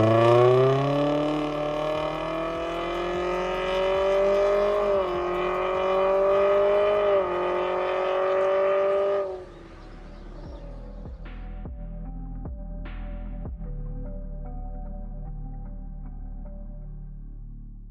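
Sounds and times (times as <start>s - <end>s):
car engine accelerating: 0.0s - 11.1s
quiet ambient music: 0.0s - 17.9s.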